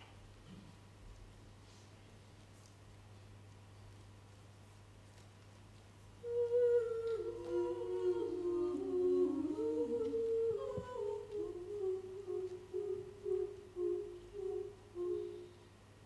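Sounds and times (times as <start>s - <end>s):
choir humming in harmony: 6.2s - 15.8s.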